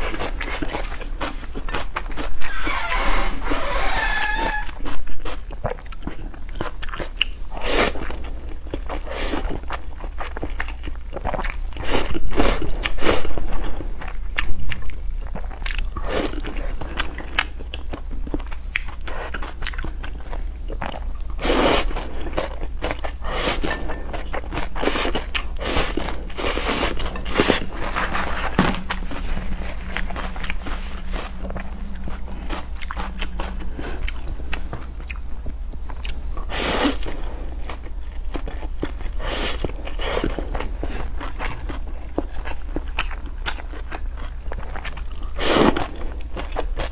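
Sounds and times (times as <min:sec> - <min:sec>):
wet slurping and chewing: 0:20.8 - 0:46.0
steady low hum: 0:23.6 - 0:42.2.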